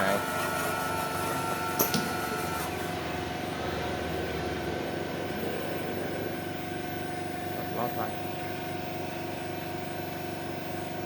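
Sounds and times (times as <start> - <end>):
high whine and hiss: 0.0 - 10.4
soldering machine humming: 0.0 - 11.0.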